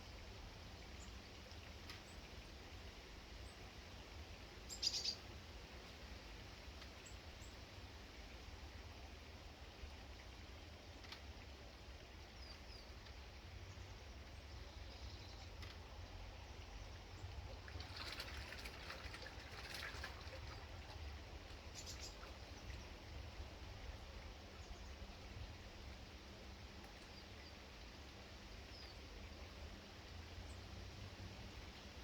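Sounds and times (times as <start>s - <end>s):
faint bird chirps: 4.7s - 5.3s, 21.7s - 23.0s.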